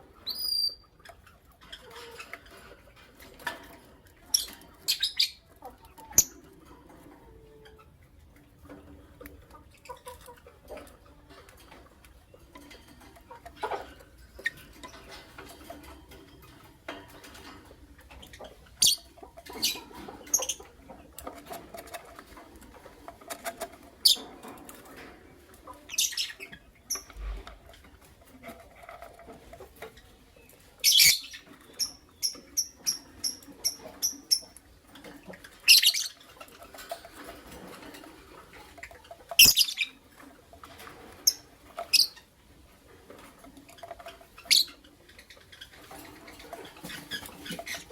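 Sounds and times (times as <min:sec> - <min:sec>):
lovebirds chirping: 0:04.3 - 0:06.4, 0:18.2 - 0:20.7, 0:25.8 - 0:27.4, 0:29.9 - 0:34.6, 0:35.3 - 0:36.5, 0:38.8 - 0:40.0, 0:43.6 - 0:47.9.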